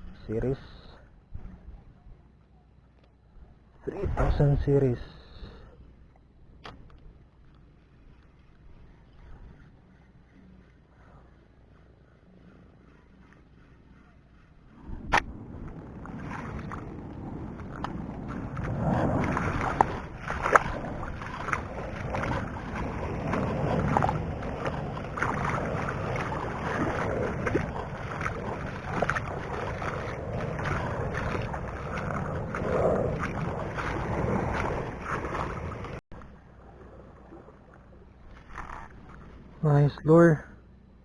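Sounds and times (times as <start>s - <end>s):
wind on microphone: 12.4s - 36.0s
water splashing at shoreline: 15.1s - 39.8s.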